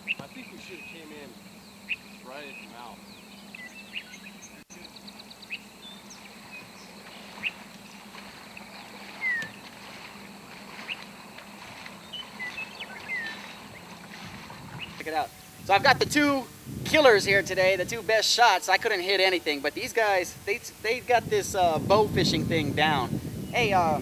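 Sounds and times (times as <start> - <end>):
bird trill: 0.0 - 15.7
bird gliding calls: 0.0 - 17.8
birds chirping: 0.0 - 24.0
faint steady hiss: 0.0 - 24.0
low hum: 0.7 - 18.2.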